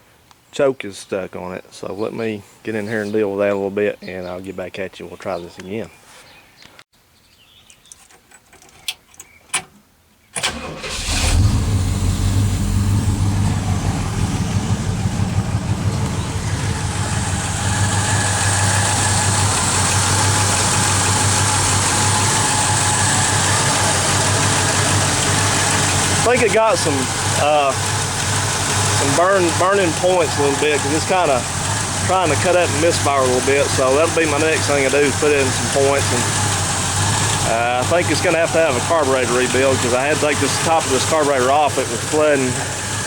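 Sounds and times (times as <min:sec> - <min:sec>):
car engine running and misfiring: 0:10.4 - 0:43.0.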